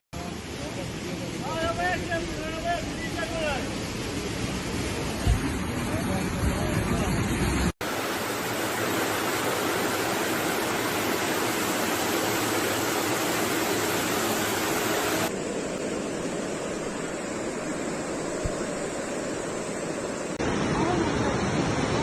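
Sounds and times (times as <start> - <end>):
floodwater rushing roar: 0.2 - 22.0.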